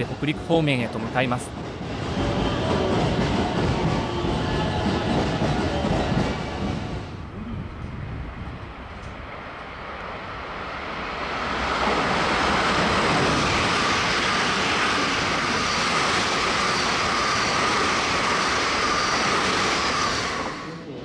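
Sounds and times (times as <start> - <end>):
electric train passing: 0.0 - 21.0.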